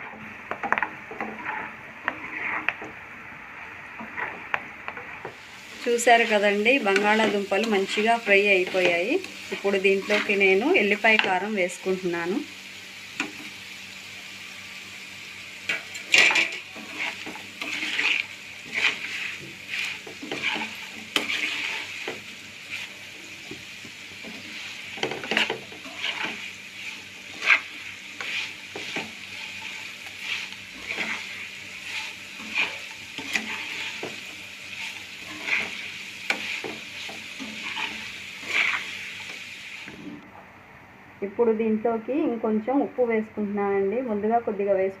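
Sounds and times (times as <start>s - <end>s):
spatula scraping a pan: 0.0s - 11.5s, 15.7s - 39.5s
potatoes sizzling in oil: 0.0s - 40.2s.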